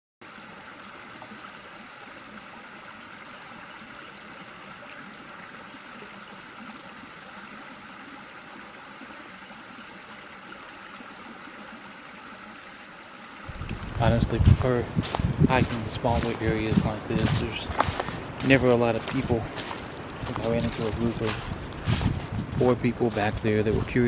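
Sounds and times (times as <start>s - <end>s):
steady outdoor rushing noise: 13.5s - 24.0s.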